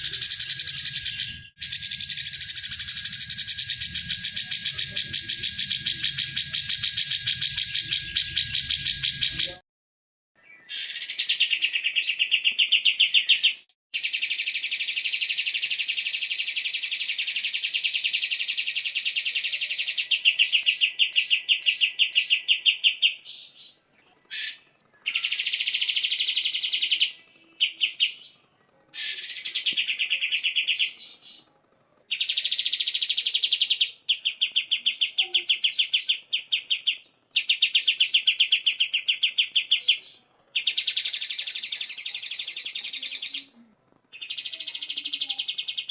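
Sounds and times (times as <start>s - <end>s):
bird singing fast rattling trills: 0.0s - 9.6s, 40.6s - 43.4s
single sweeping bird notes: 0.0s - 9.6s.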